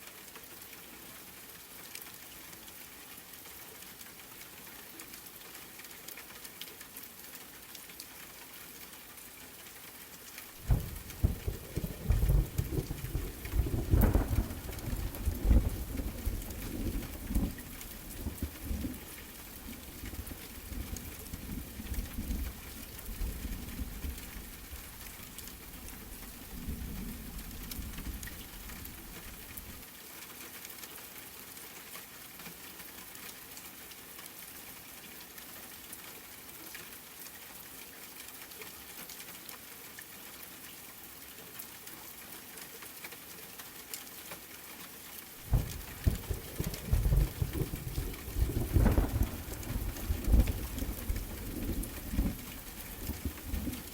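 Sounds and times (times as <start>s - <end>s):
rain falling: 0.0s - 53.9s
thunder rumbling: 10.6s - 29.8s, 45.4s - 53.9s.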